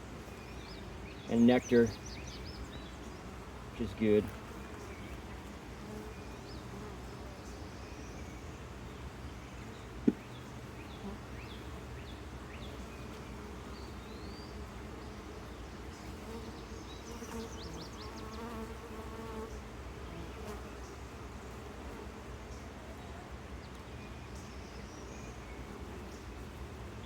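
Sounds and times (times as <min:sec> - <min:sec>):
bees buzzing: 0:00.2 - 0:07.2, 0:09.6 - 0:22.3.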